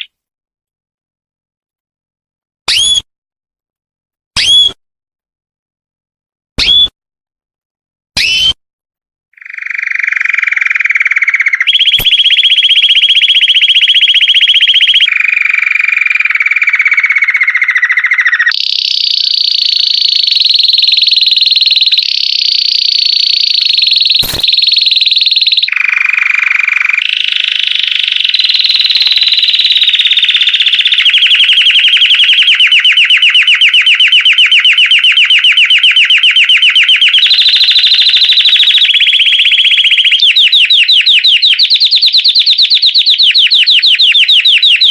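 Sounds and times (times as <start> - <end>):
canary singing rapid trills: 9.4 - 44.9.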